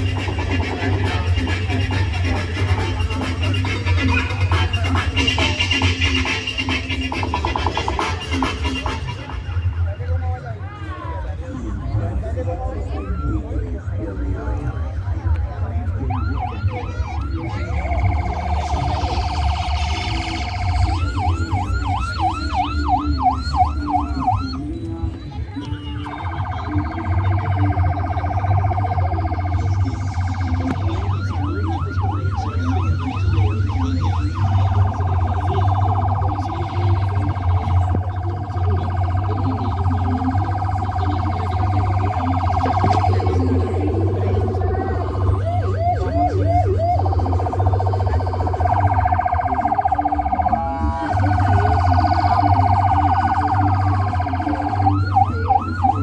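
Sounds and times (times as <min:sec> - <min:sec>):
electronic siren wailing and yelping: 0:15.9 - 0:24.7, 0:25.6 - 0:56.0.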